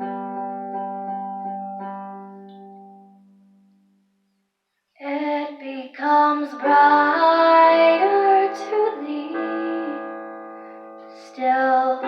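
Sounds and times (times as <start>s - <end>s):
person singing: 5.0s - 10.3s, 11.1s - 12.0s.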